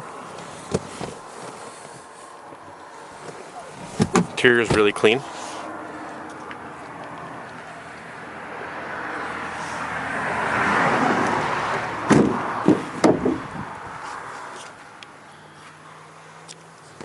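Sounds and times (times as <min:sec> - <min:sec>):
truck door thumps: 0:03.9 - 0:04.8, 0:12.1 - 0:13.6.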